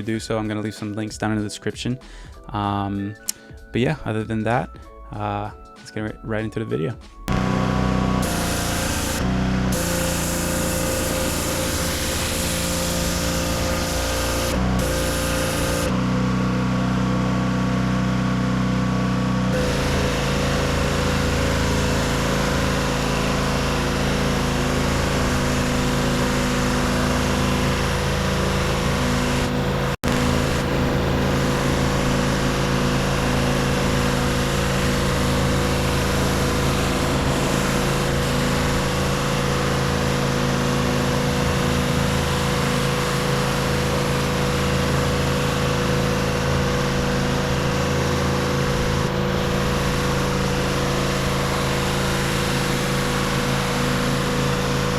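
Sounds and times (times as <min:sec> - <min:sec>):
pressure washer engine drone: 0:07.3 - 0:54.9
water spraying onto concrete: 0:08.2 - 0:15.9, 0:19.5 - 0:54.9.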